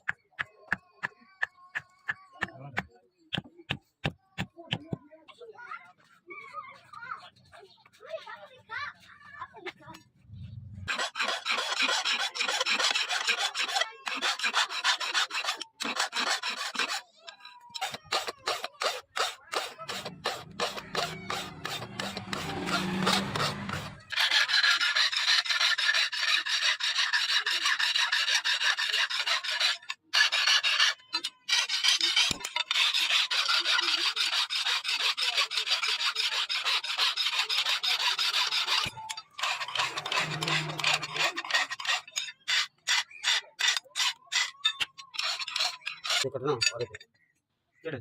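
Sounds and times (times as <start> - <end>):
steel being filed: 10.8 - 47.0.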